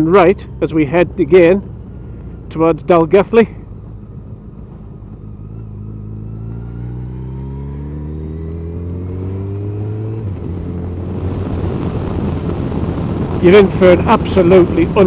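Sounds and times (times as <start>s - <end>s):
motorcycle engine accelerating: 0.0s - 15.0s
wind noise on microphone: 10.0s - 15.0s.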